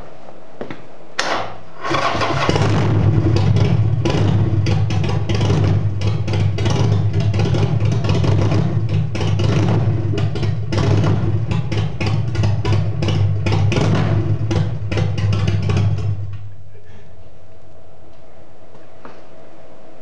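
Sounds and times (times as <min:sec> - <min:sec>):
motorcycle engine running loud: 0:01.9 - 0:16.4.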